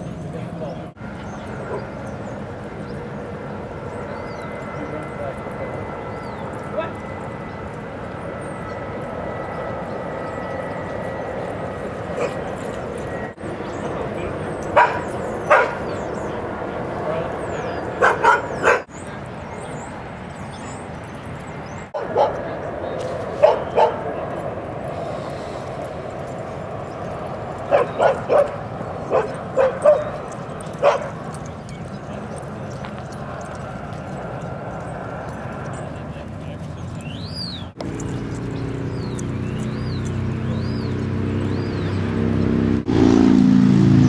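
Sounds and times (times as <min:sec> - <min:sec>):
dog barking: 0:12.2 - 0:12.4, 0:14.7 - 0:15.9, 0:18.0 - 0:18.9, 0:22.0 - 0:22.4, 0:23.4 - 0:24.1, 0:27.7 - 0:30.2, 0:30.8 - 0:31.2.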